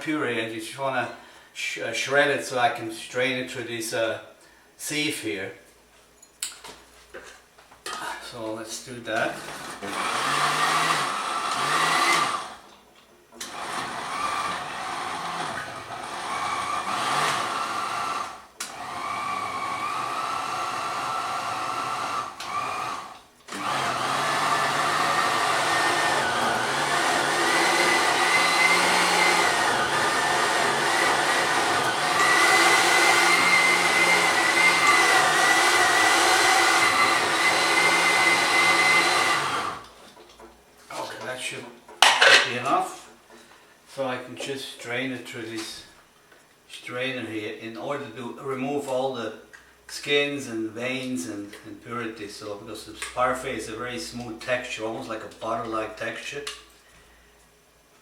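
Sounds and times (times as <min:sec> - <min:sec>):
blender motor chopping: 0:09.4 - 0:12.7, 0:13.4 - 0:39.9.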